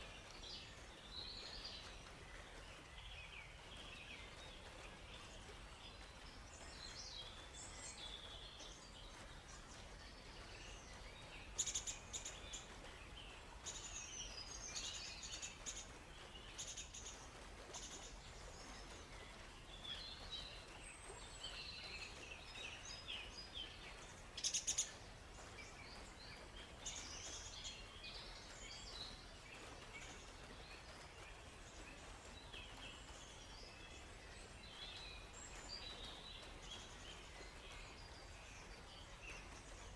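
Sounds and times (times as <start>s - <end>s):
songbirds chirping and warbling: 0.0s - 39.9s.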